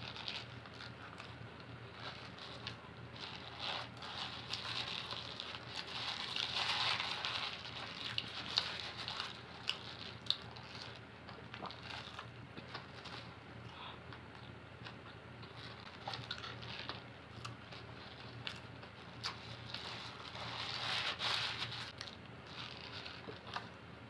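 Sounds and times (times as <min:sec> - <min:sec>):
paper wrapping rustling: 0:00.0 - 0:11.0, 0:17.7 - 0:23.7.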